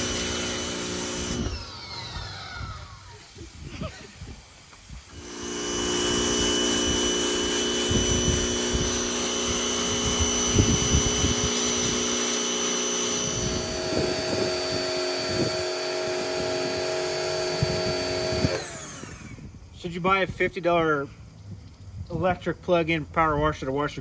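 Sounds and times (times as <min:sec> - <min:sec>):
pressure washer running: 0:00.0 - 0:03.6, 0:05.1 - 0:19.4.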